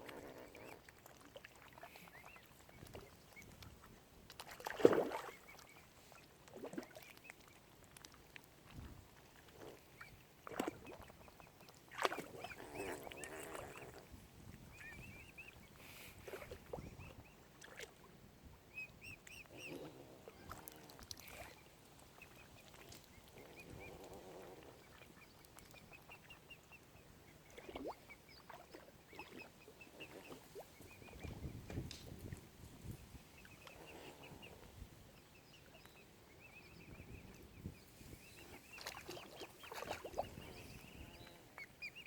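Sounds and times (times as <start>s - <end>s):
lower swan calls: 9.6s - 17.4s, 18.7s - 31.8s, 36.4s - 42.0s.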